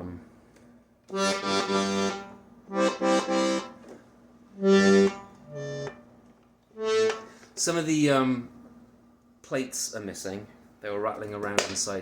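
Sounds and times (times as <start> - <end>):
accordion chords: 1.1 - 6.0, 6.7 - 7.4.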